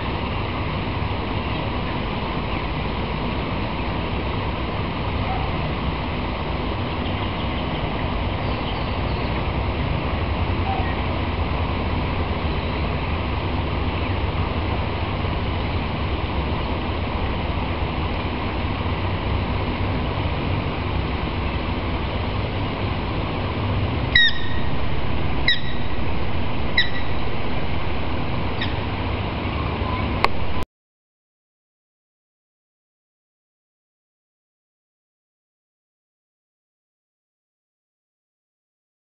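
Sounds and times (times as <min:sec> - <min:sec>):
low outdoor rumble: 0:00.0 - 0:30.6
bird falling call: 0:24.2 - 0:24.8, 0:25.4 - 0:26.0, 0:26.6 - 0:27.4, 0:28.4 - 0:29.0.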